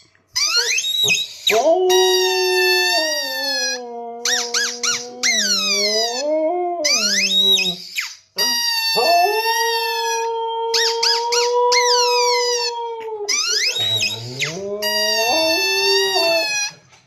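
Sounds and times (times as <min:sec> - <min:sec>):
high-pitched squeaks: 0:00.4 - 0:16.8
husky howling: 0:09.0 - 0:16.6.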